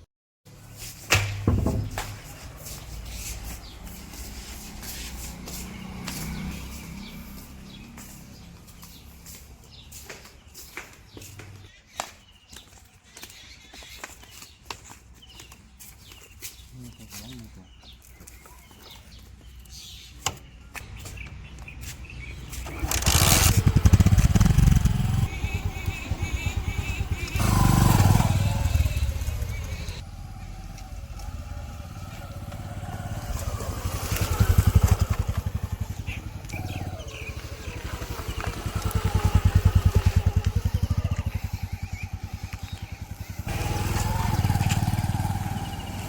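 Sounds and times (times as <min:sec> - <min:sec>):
heavy diesel engine chugging: 0:24.1 - 0:30.0.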